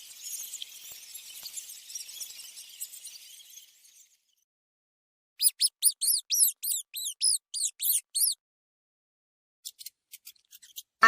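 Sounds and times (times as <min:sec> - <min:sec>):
rat squeaking: 0:05.4 - 0:08.4.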